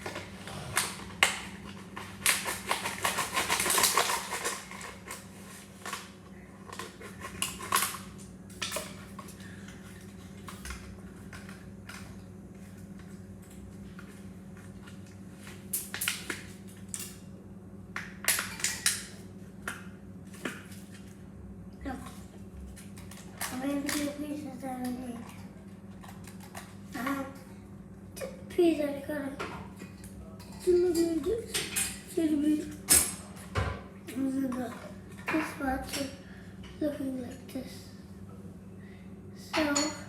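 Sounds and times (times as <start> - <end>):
steady low hum: 16.4 - 40.0.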